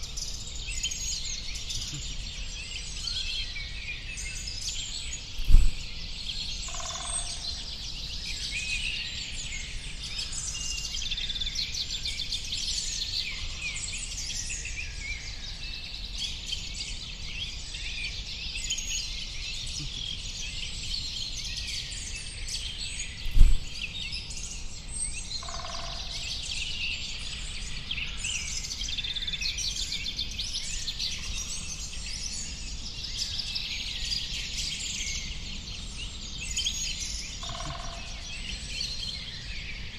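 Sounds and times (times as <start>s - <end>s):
small birds chirping: 0.0s - 3.6s, 18.6s - 39.9s
short low thumps: 5.4s - 5.9s, 23.3s - 23.8s.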